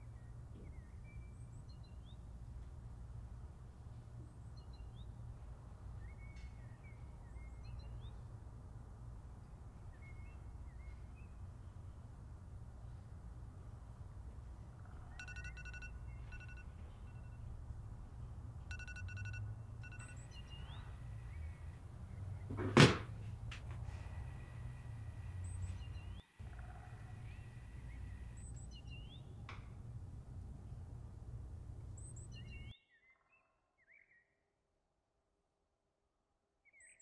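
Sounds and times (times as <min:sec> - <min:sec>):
low steady hum: 0:00.0 - 0:32.8
birds chirping: 0:14.2 - 0:22.8, 0:24.0 - 0:29.5, 0:31.8 - 0:32.7
bird trills: 0:14.8 - 0:17.5, 0:25.4 - 0:29.2
loud thunk: 0:22.5 - 0:23.1.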